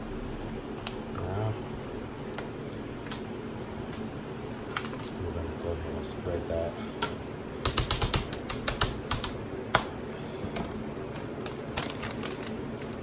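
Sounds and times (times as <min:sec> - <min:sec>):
cheese spreading clicks and taps: 0:07.0 - 0:10.0.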